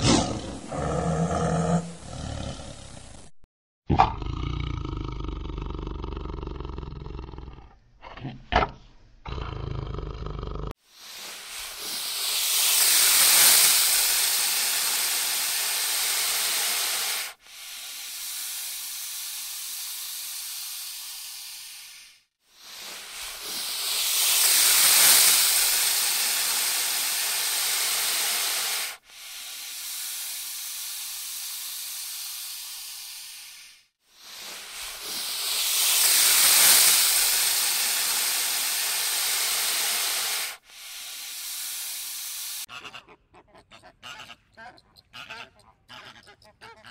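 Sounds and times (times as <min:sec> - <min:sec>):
snake hissing: 0:00.0 - 0:03.3, 0:10.8 - 0:42.7.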